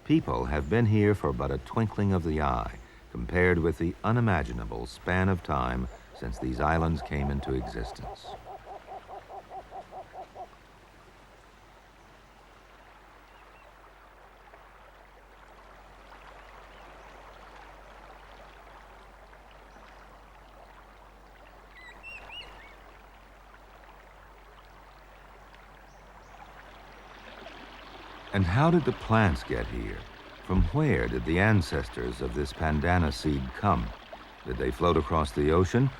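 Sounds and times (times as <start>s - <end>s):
faint steady hiss: 0.0s - 35.9s
rapid repeated animal calls: 5.6s - 10.5s.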